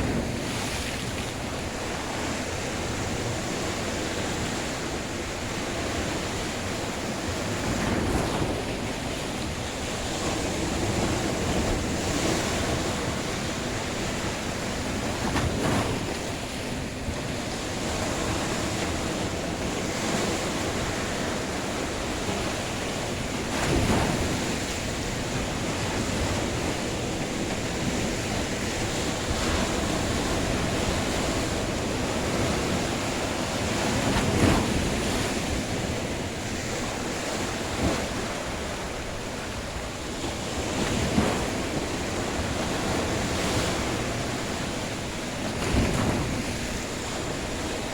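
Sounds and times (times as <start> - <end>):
sea waves washing on shore: 0.0 - 47.9
wind noise on microphone: 0.0 - 47.9.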